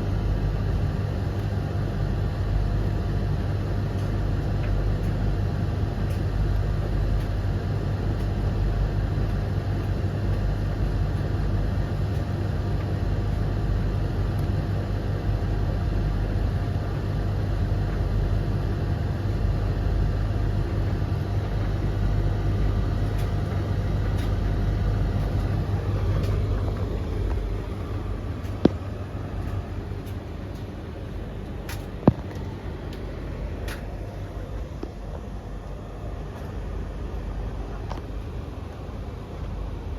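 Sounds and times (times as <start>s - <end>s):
tumble dryer drum rumble: 0.0s - 39.9s.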